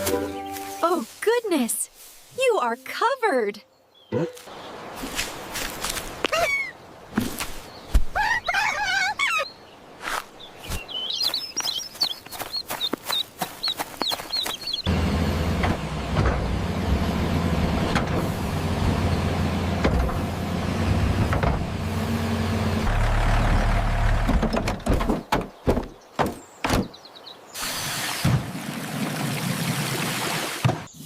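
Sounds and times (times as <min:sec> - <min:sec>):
clucking and chirping calls: 0:07.9 - 0:09.6, 0:10.7 - 0:14.9
tractor engine running: 0:14.8 - 0:25.2.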